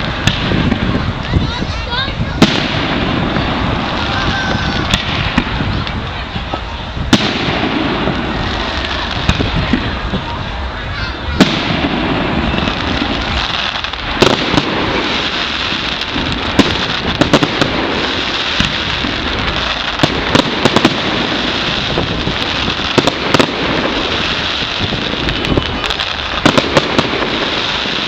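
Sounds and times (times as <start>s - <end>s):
fireworks crackling: 0.0s - 28.0s
firework shells bursting: 11.4s - 28.0s.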